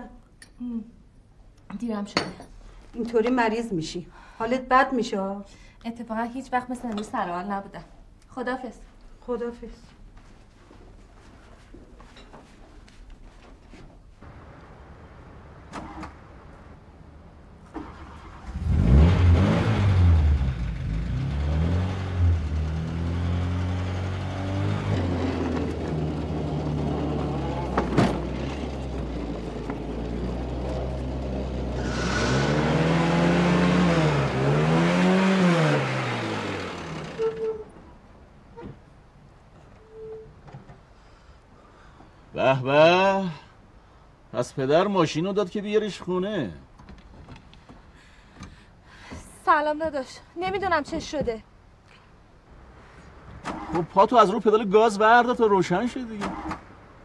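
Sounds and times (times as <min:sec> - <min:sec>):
car engine starting and revving: 0:17.6 - 0:37.4.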